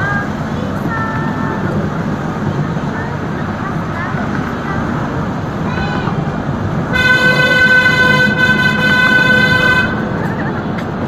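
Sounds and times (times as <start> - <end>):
train rumbling along track: 0.0 - 11.0
train whistle toot: 6.9 - 10.0.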